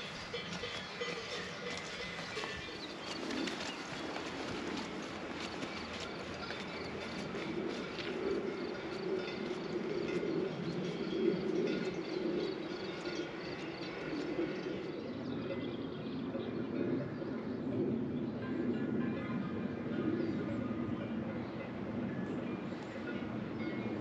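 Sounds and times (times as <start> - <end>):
birds calling: 0.0 - 15.9.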